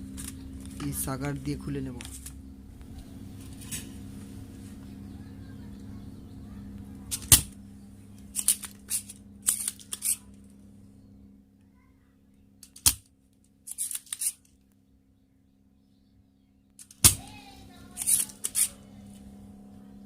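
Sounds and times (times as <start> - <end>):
desoldering pump snapping: 0.0 - 4.0, 7.0 - 10.5, 12.6 - 14.6, 16.7 - 18.8
steady low hum: 0.0 - 20.0
handling clicks and rattles: 1.8 - 3.9, 7.1 - 10.4.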